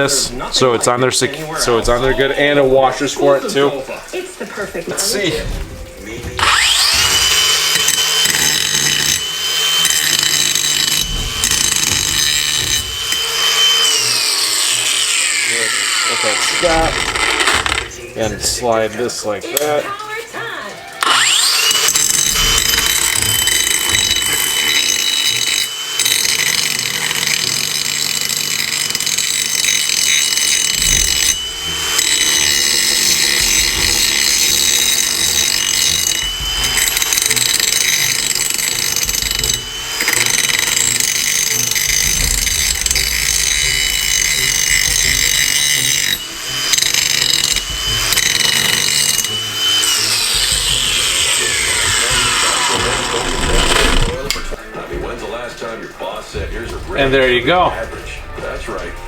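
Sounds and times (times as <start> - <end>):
angle grinder cutting metal: 0.0 - 3.8, 4.9 - 19.8, 21.0 - 54.6.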